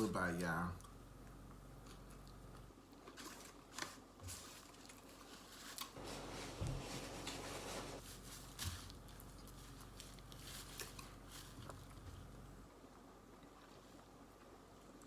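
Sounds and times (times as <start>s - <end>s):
person chewing food: 8.8s - 15.0s.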